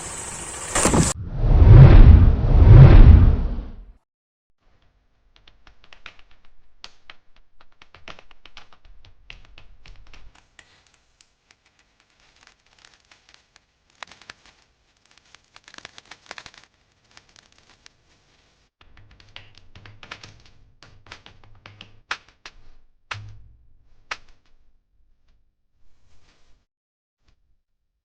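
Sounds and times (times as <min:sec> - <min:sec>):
raindrops tapping on hard surfaces: 0:05.4 - 0:17.9, 0:18.9 - 0:23.4.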